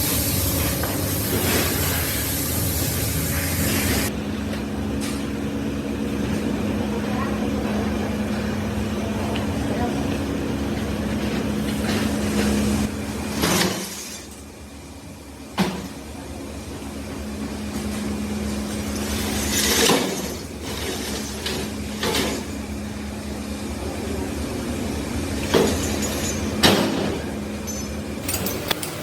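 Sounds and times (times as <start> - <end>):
hissing or scraping bursts: 0.0 - 4.1
workshop machinery humming: 0.0 - 29.0.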